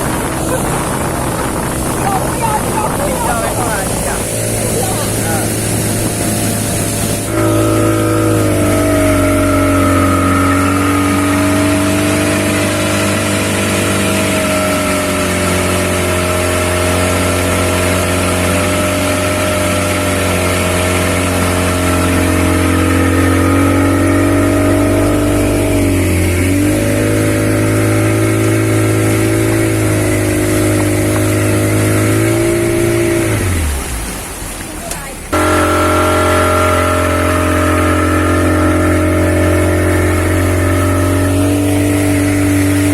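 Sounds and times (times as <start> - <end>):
wind rushing: 0.0 - 7.4
speedboat engine running: 0.0 - 42.9
water rushing: 0.0 - 42.9.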